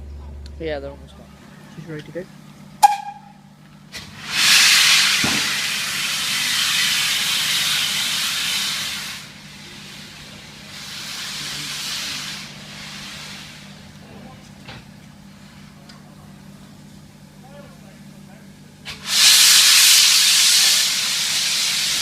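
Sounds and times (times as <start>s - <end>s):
steam locomotive venting steam: 3.9s - 14.3s, 18.8s - 22.0s.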